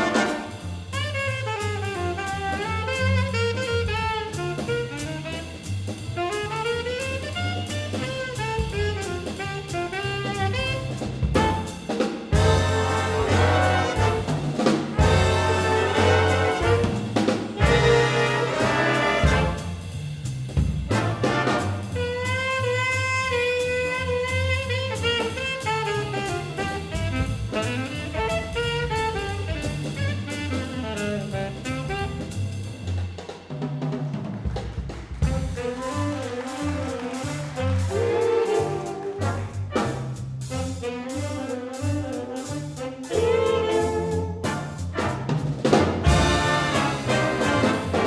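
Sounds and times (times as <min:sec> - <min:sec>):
brass hits: 0:00.0 - 0:04.1, 0:09.8 - 0:26.6, 0:35.2 - 0:48.0
big band swing jazz: 0:00.0 - 0:48.0.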